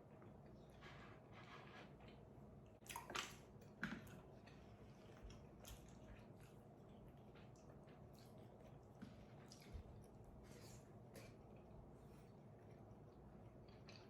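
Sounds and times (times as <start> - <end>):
wet chewing of food: 2.8 - 14.0.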